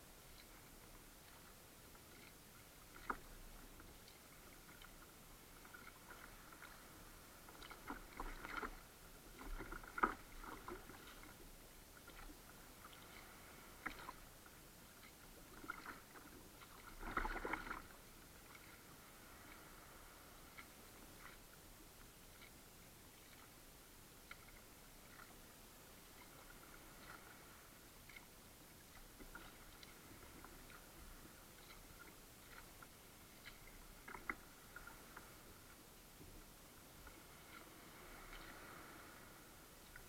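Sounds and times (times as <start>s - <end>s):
paddle splashes and drips: 0.2s - 23.6s, 24.2s - 40.0s.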